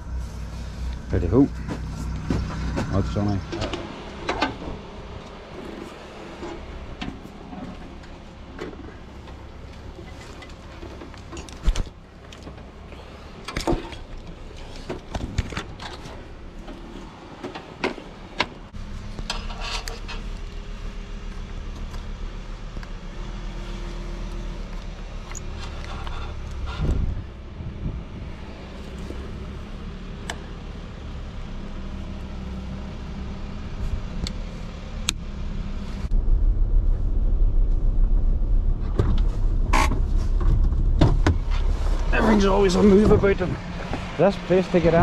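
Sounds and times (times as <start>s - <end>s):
vehicle engine running: 0.0s - 45.0s
knocks and clatter: 1.6s - 4.8s, 37.5s - 42.1s.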